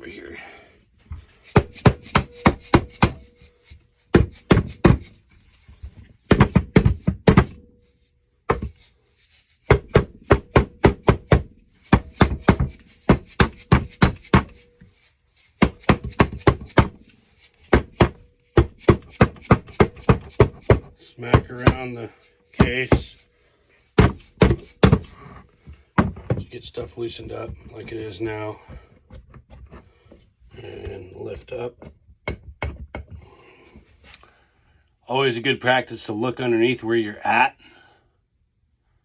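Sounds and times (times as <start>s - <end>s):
mallet striking engine case: 1.5s - 3.4s, 6.3s - 7.7s, 9.7s - 14.8s, 15.6s - 22.0s, 24.0s - 25.2s.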